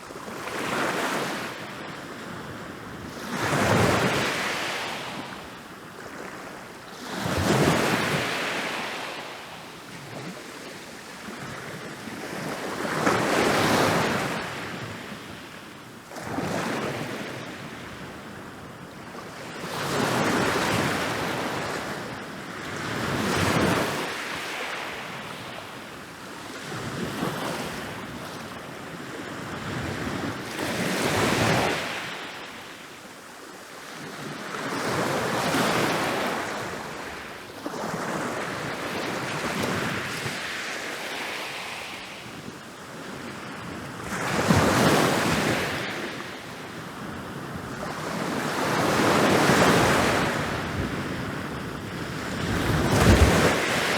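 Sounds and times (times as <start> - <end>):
ocean waves breaking on beach: 33.6 - 53.9.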